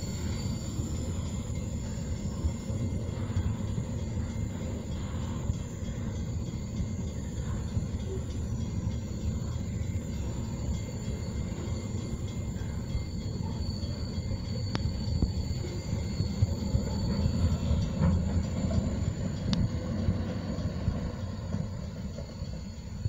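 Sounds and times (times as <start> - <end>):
high wheel squeal: 0.0 - 23.0
train wheels rumbling on track: 0.0 - 23.0.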